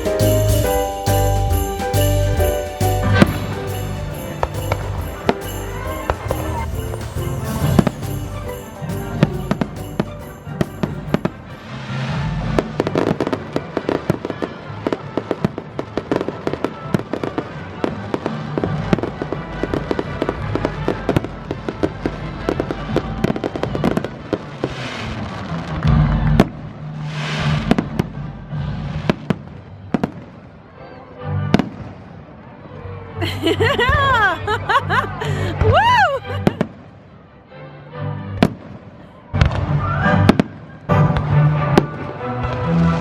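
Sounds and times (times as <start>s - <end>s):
heavy low firework boom: 0.0s - 8.4s
fireworks pops and crackling: 4.4s - 30.4s.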